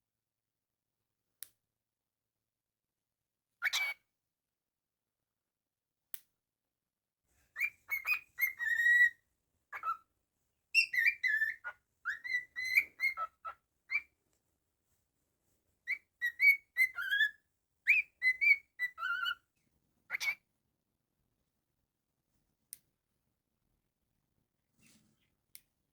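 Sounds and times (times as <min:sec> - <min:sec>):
cockatiel whistling a tune: 0:07.6 - 0:10.0, 0:10.7 - 0:14.1, 0:15.8 - 0:19.4.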